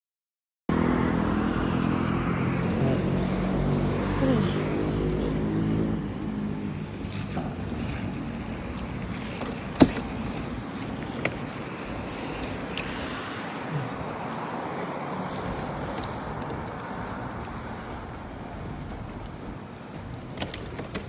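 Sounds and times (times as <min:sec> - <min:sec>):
tyres hissing on wet road: 0:00.7 - 0:06.0, 0:11.7 - 0:15.3.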